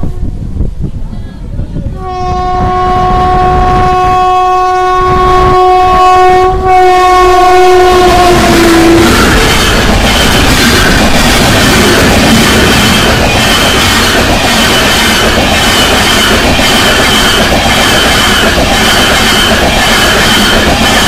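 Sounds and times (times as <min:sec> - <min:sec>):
train coaches rumbling past: 0:00.0 - 0:21.0
locomotive horn: 0:02.0 - 0:09.4.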